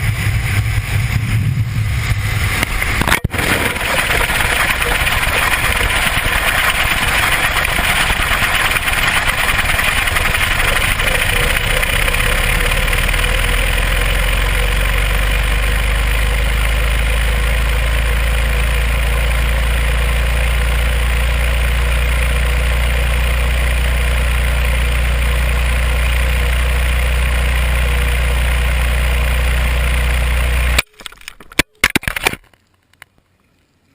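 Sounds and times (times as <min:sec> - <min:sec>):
wind rushing over microphone: 0:00.0 - 0:05.6
low drone: 0:00.0 - 0:30.8.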